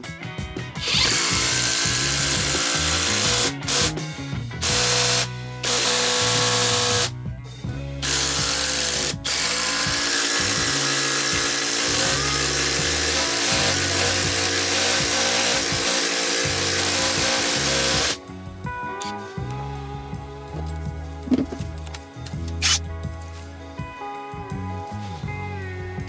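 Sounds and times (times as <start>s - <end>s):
cordless impact driver running: 0.8s - 4.0s, 4.6s - 7.1s, 8.0s - 18.2s, 21.3s - 22.8s.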